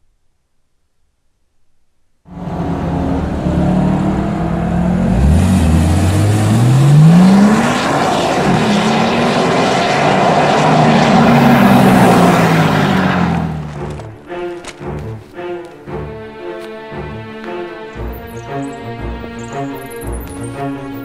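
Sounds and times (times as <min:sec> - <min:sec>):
car engine revving: 0:02.3 - 0:21.0.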